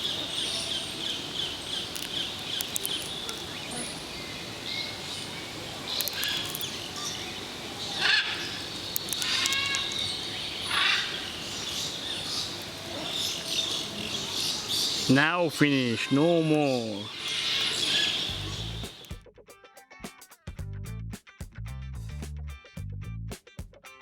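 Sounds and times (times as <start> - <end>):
loud bird call: 0.0 - 19.1
birds chirping: 0.0 - 19.2.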